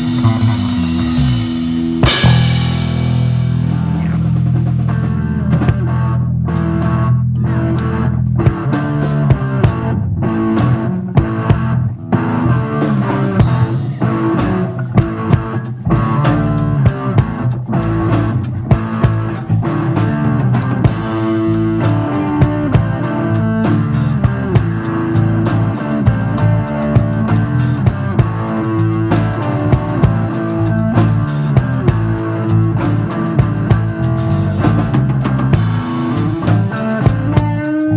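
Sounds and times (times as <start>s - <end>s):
drum hits: 0.0s - 5.8s
live rock band playing: 0.0s - 37.9s.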